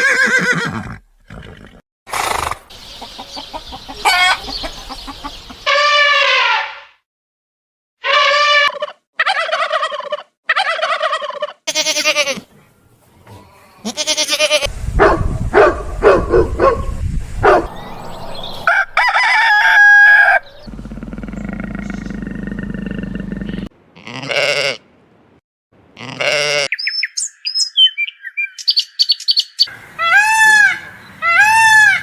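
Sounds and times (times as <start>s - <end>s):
fowl calling: 3.1s - 6.9s, 29.7s - 32.0s.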